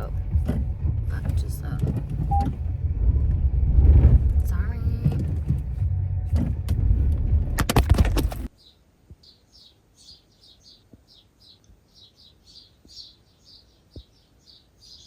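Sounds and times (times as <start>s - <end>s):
sharp clicks and knocks: 0.0s - 3.4s, 4.0s - 8.5s
car engine rumble: 0.0s - 8.5s
small bird chirping: 8.5s - 15.0s.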